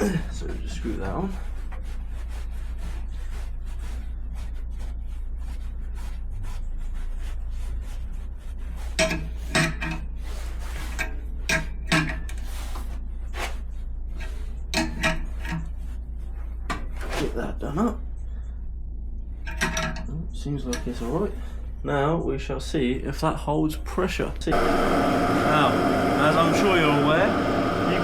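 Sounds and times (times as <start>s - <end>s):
air compressor motor humming: 24.5s - 28.0s.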